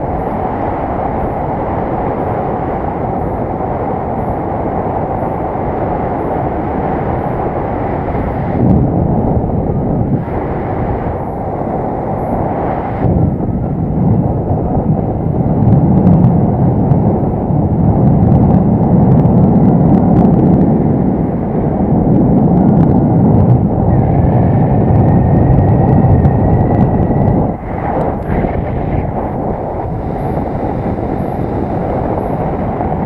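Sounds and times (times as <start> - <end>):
wind buffeting microphone: 0.0 - 33.0
faint steady whistle: 23.9 - 28.0.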